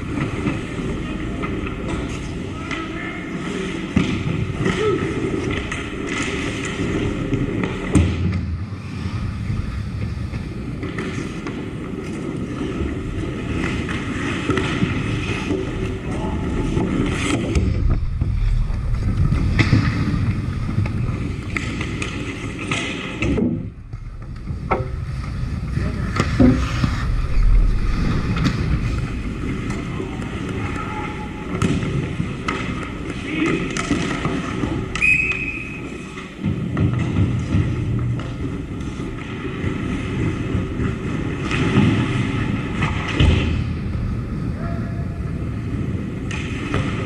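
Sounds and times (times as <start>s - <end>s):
skates scraping ice: 0.0s - 47.0s
sticks and puck knocking: 28.4s - 35.1s
faint players' voices: 28.8s - 34.9s.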